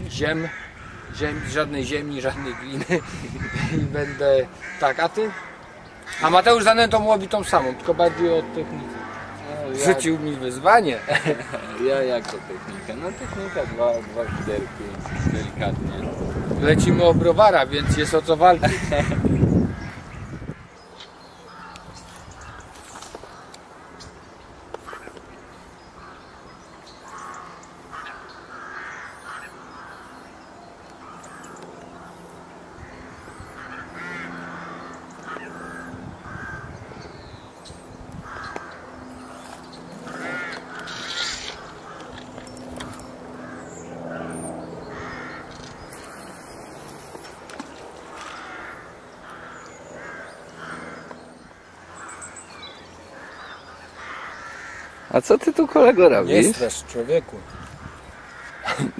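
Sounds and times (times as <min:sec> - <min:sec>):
harsh bird calls: 0:00.0 - 0:58.9.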